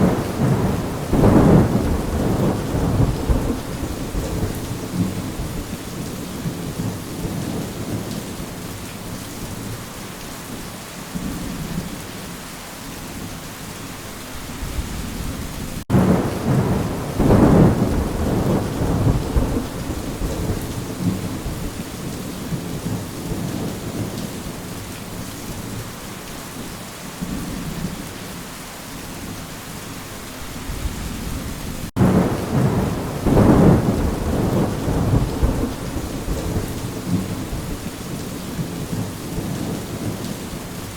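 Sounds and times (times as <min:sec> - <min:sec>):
rolling thunder: 0:00.0 - 0:08.2, 0:14.6 - 0:24.2, 0:30.7 - 0:40.4
steady rain: 0:00.0 - 0:40.9.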